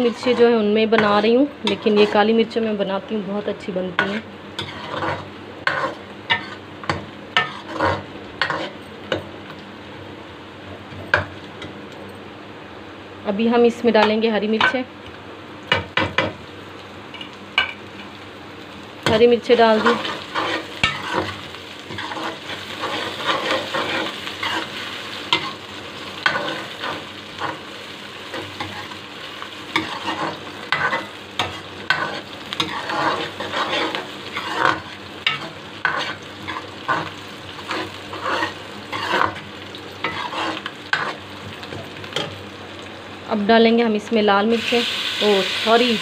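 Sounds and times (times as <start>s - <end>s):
vegetables sizzling in oil: 0.0s - 46.0s
metal ladle scraping a wok: 7.4s - 8.8s, 29.8s - 39.4s, 40.0s - 41.2s.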